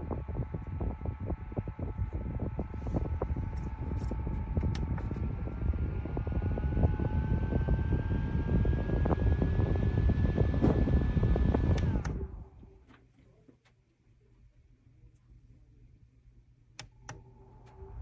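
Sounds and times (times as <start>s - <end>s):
air buffeting microphone: 0.0s - 12.8s
desk fan motor whine: 0.0s - 12.8s, 16.8s - 18.0s.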